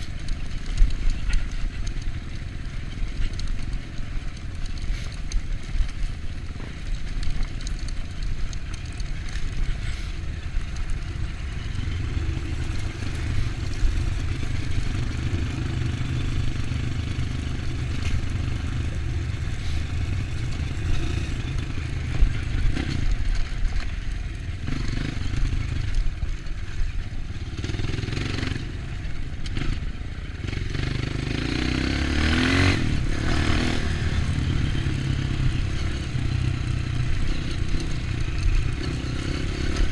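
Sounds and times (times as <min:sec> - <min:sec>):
bike clattering over rough ground: 0:00.0 - 0:15.9
motorcycle engine revving: 0:00.0 - 0:39.9.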